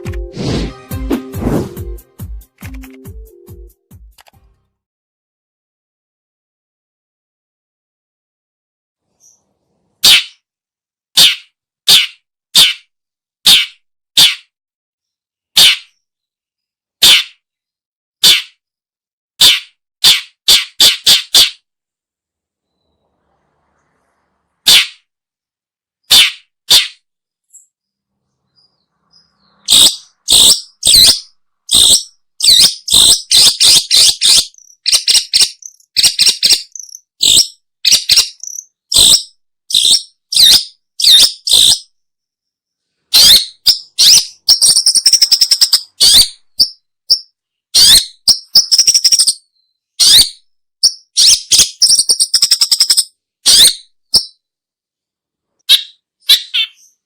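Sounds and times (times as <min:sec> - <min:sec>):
bird harsh chattering calls: 0:10.0 - 0:10.4, 0:11.2 - 0:12.8, 0:28.5 - 0:41.9, 0:43.1 - 0:46.7, 0:47.8 - 0:49.4, 0:51.1 - 0:54.3, 0:55.7 - 0:57.0.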